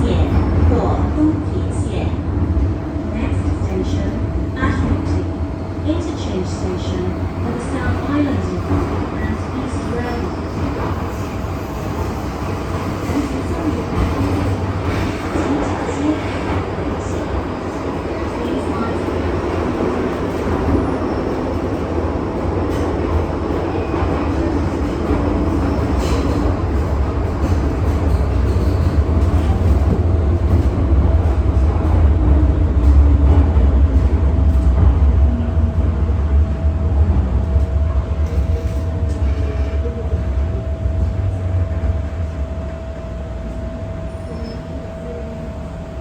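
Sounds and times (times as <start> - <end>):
train wheels rumbling on track: 0.0 - 46.0.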